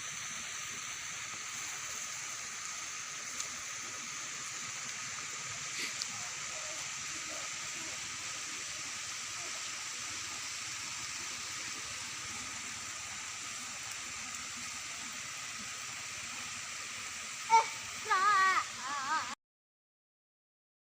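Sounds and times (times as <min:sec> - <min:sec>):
stream rushing: 0:00.0 - 0:19.4.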